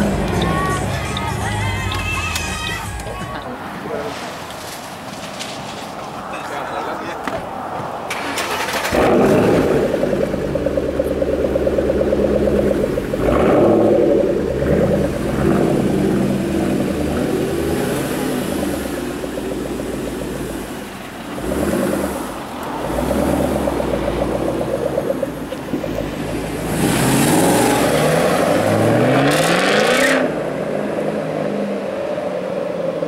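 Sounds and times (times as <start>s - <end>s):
car engine under load: 7.1s - 33.0s.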